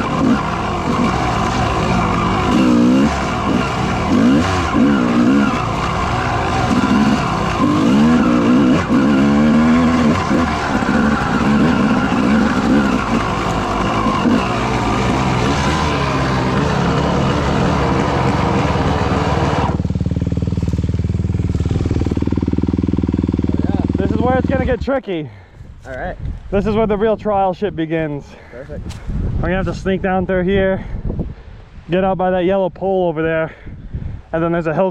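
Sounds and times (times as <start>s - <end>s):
dirt bike engine revving: 0.0s - 24.9s.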